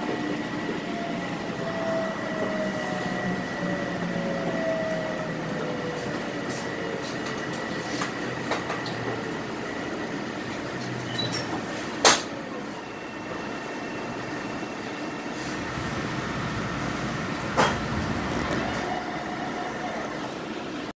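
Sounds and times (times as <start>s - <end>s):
train rumble and rattle: 0.0s - 20.9s.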